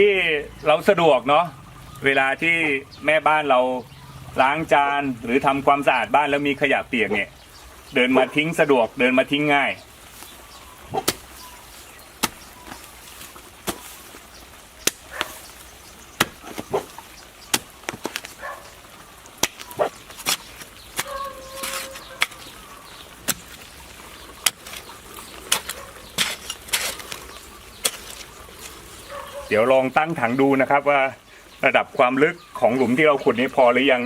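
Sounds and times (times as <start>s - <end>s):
tool striking soil: 10.1s - 14.2s, 14.8s - 15.6s, 16.2s - 18.4s, 19.4s - 22.6s, 23.2s - 23.7s, 24.4s - 28.9s.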